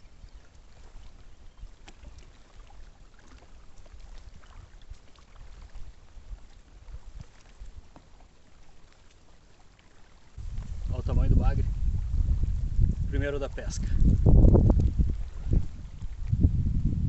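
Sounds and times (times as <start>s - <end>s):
small water splashes: 0.0s - 16.6s
wind rumble on microphone: 10.4s - 17.0s.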